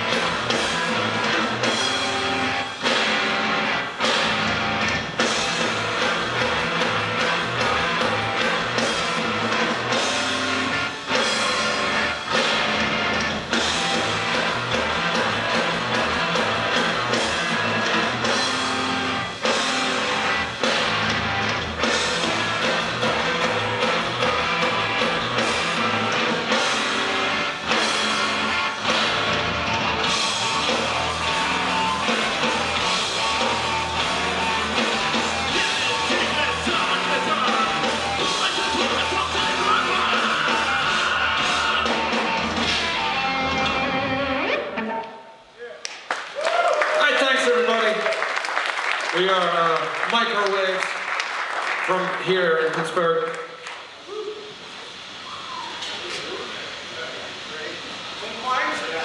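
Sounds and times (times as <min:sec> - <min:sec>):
noise-rock band playing live: 0:00.0 - 0:45.3.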